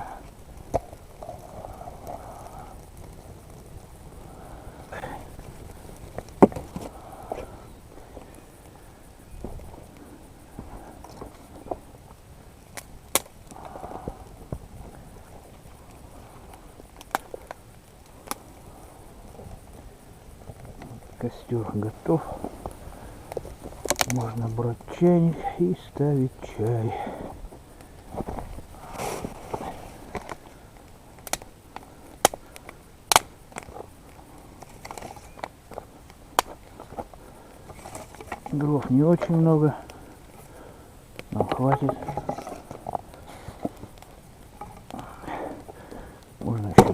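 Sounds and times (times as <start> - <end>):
sharp fire pops: 0.0 - 25.0, 25.9 - 46.9
campfire twigs crackling: 0.0 - 46.9
twigs snapping sharply: 12.6 - 14.6, 15.8 - 18.6, 22.4 - 24.6, 27.8 - 38.6.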